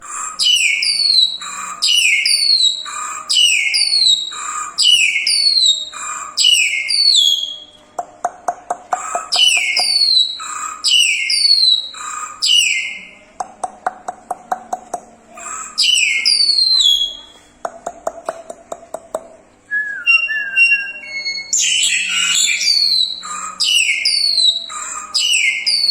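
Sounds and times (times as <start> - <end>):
starling whistling song: 0.1 - 7.8, 9.0 - 13.1, 15.4 - 17.3, 19.7 - 25.9.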